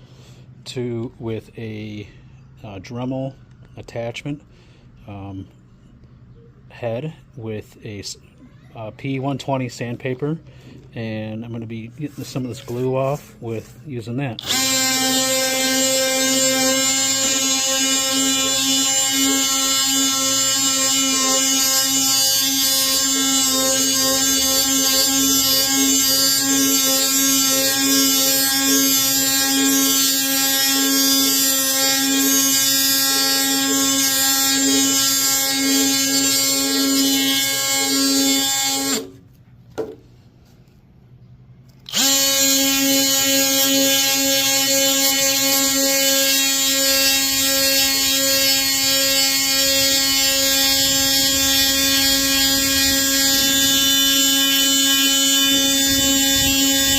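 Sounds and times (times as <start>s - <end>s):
multi-tool buzzing while sanding: 14.4s - 39.2s, 41.8s - 56.9s.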